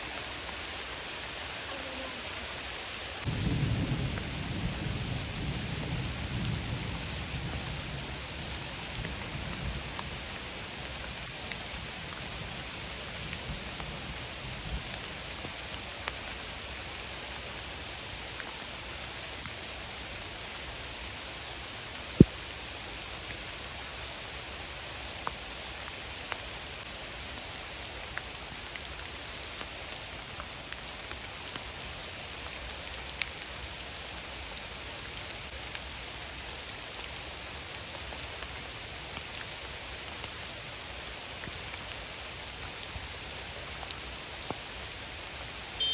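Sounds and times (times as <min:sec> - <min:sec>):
steady rain falling: 0:00.0 - 0:45.9
low thunder rumble: 0:03.2 - 0:09.9.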